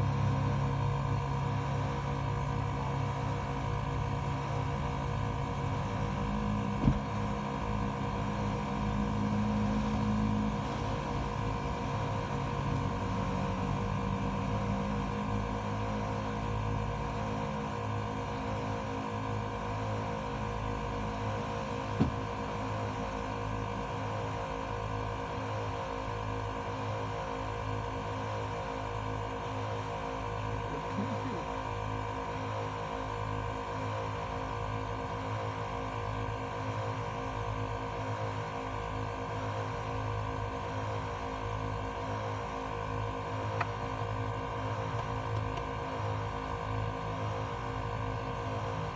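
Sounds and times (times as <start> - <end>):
air compressor running: 0.0 - 14.0.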